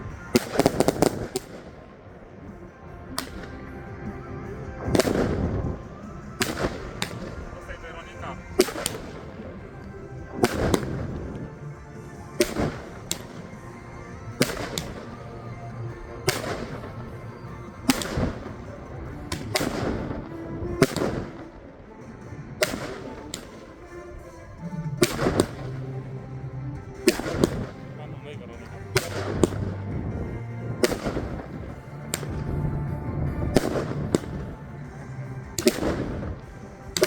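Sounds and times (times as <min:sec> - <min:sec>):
firework bangs: 0:00.0 - 0:37.0
firework crackling: 0:00.0 - 0:37.0.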